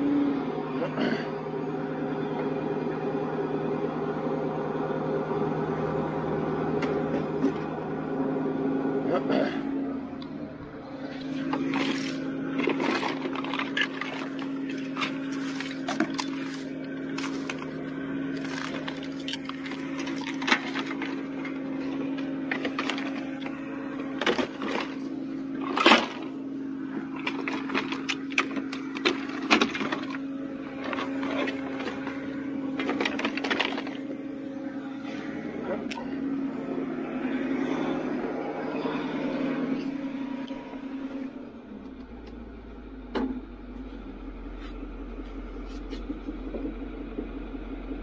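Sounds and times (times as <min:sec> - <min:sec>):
steady hum: 0:00.0 - 0:48.0.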